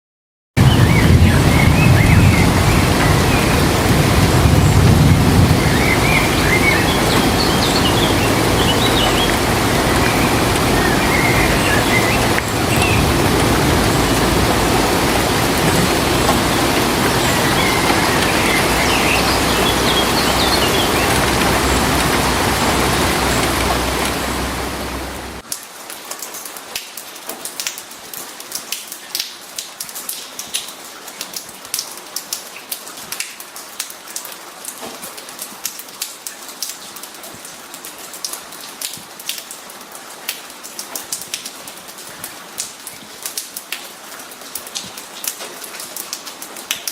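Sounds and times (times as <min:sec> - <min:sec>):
birds chirping: 0:00.6 - 0:25.4
raindrops pattering and dripping: 0:00.6 - 0:46.9
rushing water: 0:00.6 - 0:46.9.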